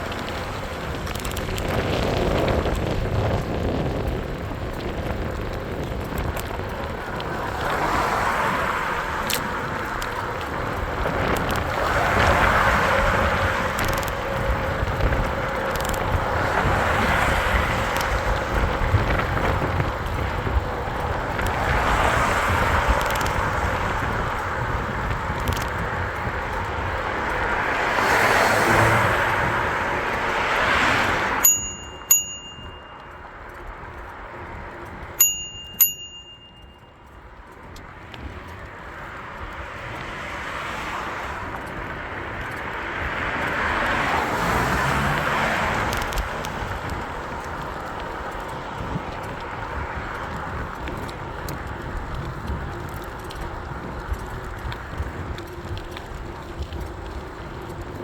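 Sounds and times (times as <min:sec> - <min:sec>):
rushing wind and riding noise: 0:00.0 - 0:58.0
bicycle bell dings: 0:31.4 - 0:33.7, 0:35.1 - 0:37.2.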